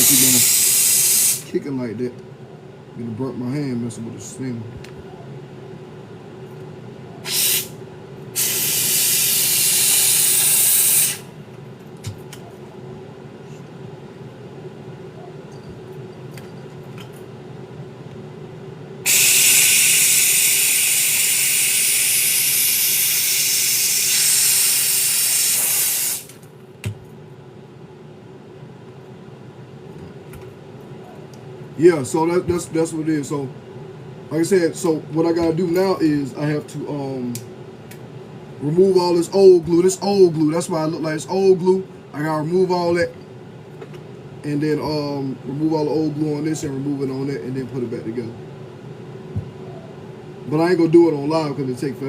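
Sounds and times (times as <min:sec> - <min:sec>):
garment steamer hissing steam: 0:00.0 - 0:01.6, 0:07.2 - 0:07.8, 0:08.4 - 0:11.4, 0:19.0 - 0:26.4.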